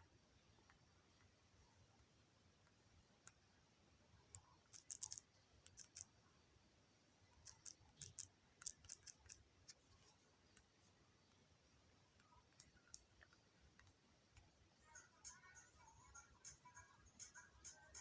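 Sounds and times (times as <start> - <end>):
fingers tapping touchscreen: 4.3 - 6.1, 7.4 - 9.8, 12.1 - 18.0.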